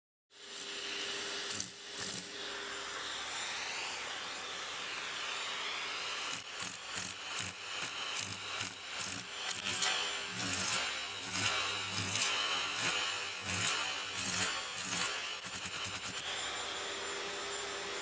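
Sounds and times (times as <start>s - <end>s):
vacuum cleaner running: 0.3s - 18.0s.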